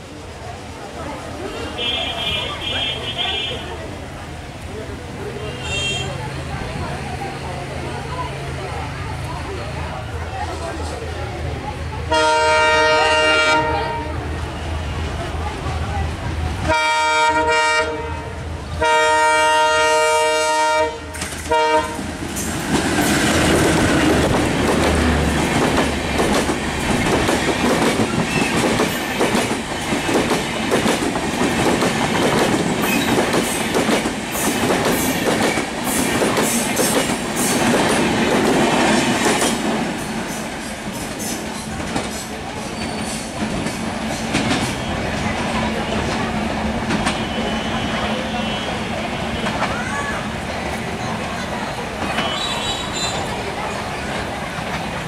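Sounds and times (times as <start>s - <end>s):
locomotive horn: 12.1s - 14.2s, 16.7s - 22.0s
train wheels clattering over rail joints: 21.1s - 47.3s.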